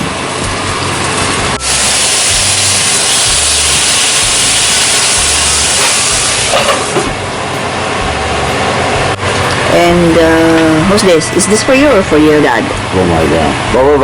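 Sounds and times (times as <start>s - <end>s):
omelette sizzling in pan: 1.6s - 6.9s
low rumble: 7.1s - 14.0s.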